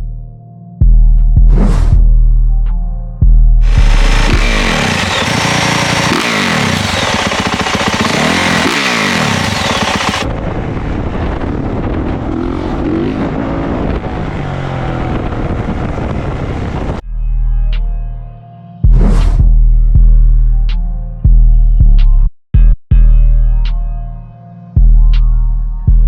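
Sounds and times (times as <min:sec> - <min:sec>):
dirt bike engines revving: 0:03.6 - 0:10.3.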